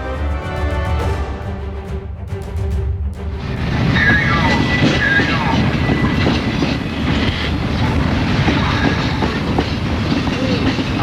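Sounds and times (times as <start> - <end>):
train rumbling on rails: 0.6 - 11.0
wheels clicking on track: 4.0 - 11.0.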